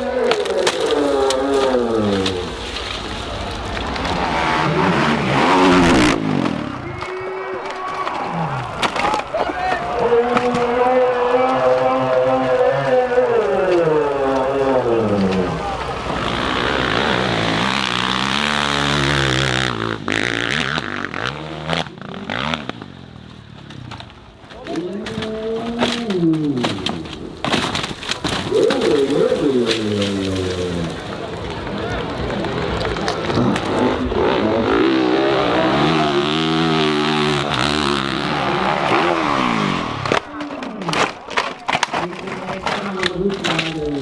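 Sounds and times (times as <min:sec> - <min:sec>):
dirt bike engine revving: 0:03.8 - 0:07.5, 0:10.0 - 0:23.9, 0:32.0 - 0:40.2.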